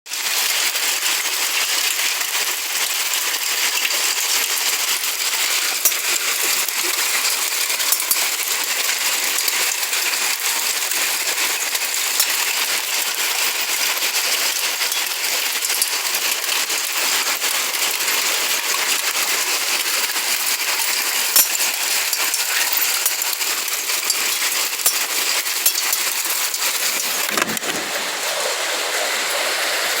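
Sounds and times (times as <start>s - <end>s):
small clicks and ticks: 20.5s - 27.8s.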